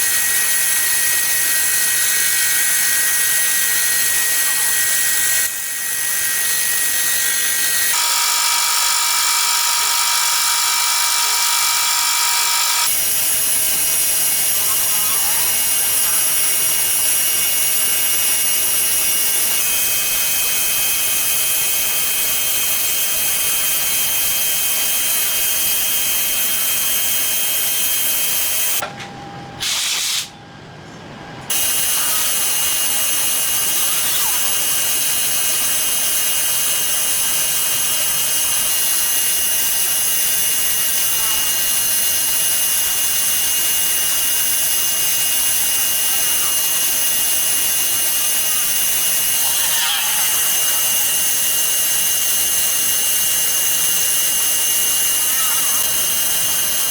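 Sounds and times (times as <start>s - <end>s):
machine tool cutting steel: 0.0s - 28.8s, 31.5s - 56.9s
high whines: 31.5s - 56.9s.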